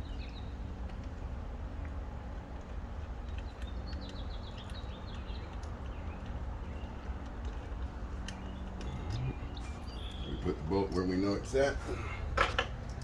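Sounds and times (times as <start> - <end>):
bird chirping: 0.0 - 0.6, 3.4 - 7.1, 8.2 - 11.3
low background hum: 0.0 - 13.0.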